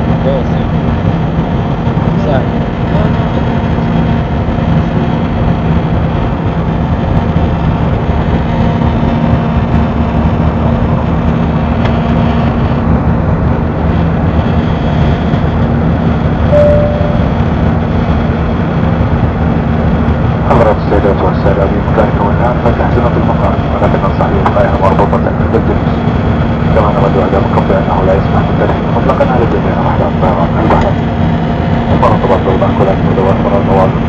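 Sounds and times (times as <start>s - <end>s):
airliner engines and airflow rushing: 0.0s - 34.0s
constant low hum: 0.0s - 34.0s
single tone: 16.5s - 17.4s.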